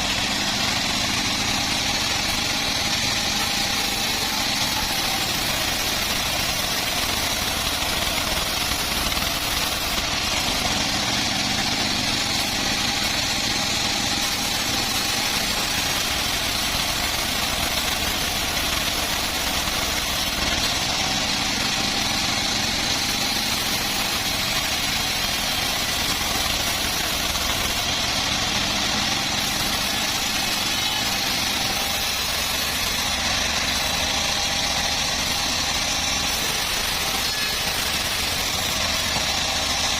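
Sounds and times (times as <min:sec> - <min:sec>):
bandsaw machine drone: 0:00.0 - 0:39.9.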